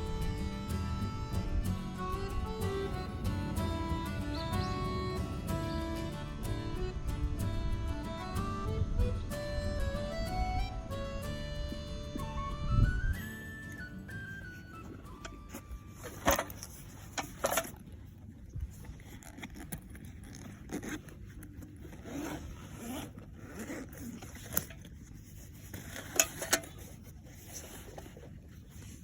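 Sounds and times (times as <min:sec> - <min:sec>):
metal parts scraping and rubbing: 0:25.4 - 0:28.2.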